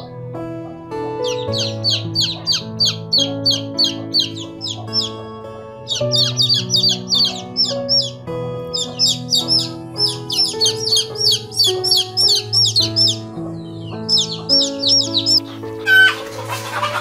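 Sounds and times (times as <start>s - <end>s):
gentle background music: 0.0s - 17.0s
bird chirping: 1.1s - 17.0s.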